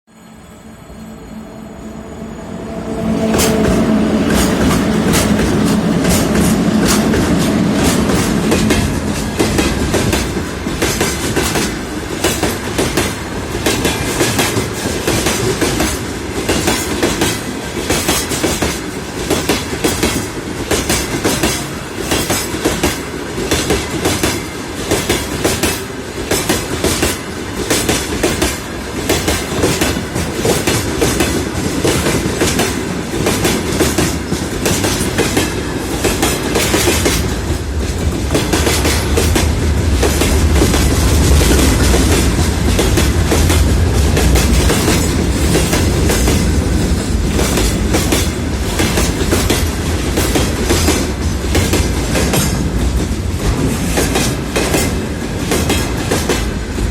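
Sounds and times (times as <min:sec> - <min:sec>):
locomotive hum: 0:00.2 - 0:12.2, 0:30.1 - 0:55.5
train wheels clattering on rail joints: 0:02.8 - 0:56.9.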